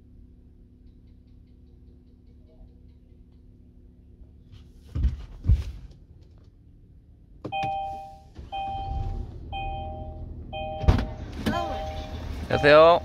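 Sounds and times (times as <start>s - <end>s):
car two-tone signal pulses: 7.5s - 13.0s.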